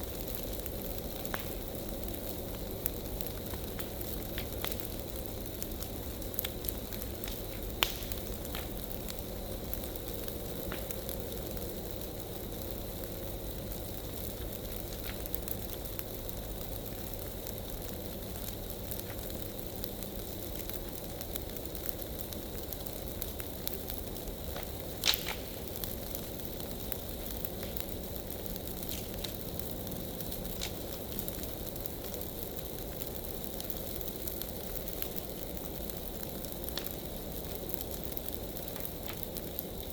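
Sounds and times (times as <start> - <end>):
bonfire rumbling and crackling: 0.0 - 39.9
sharp fire pops: 0.0 - 39.9.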